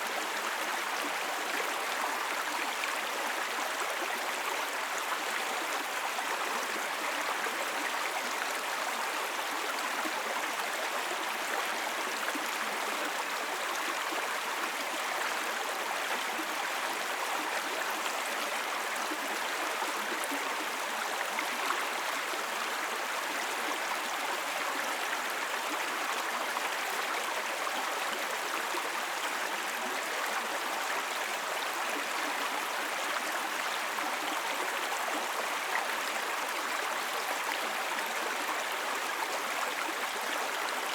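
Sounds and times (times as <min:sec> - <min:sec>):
brook babbling over stones: 0:00.0 - 0:40.9.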